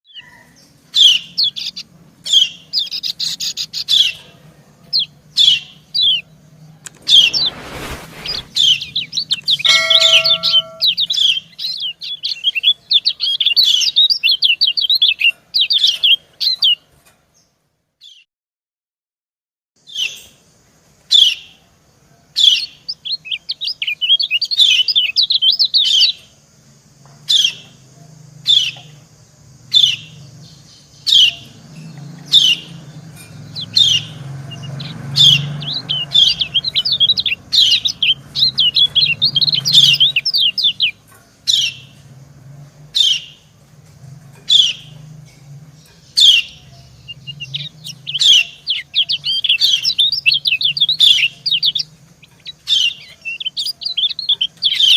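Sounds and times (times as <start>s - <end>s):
bird rapid twittering song: 0.1s - 16.8s, 22.4s - 26.4s, 27.3s - 42.1s, 43.0s - 43.6s, 44.4s - 54.9s
bird sharp calls: 6.9s - 16.8s, 31.0s - 41.9s, 46.1s - 54.9s.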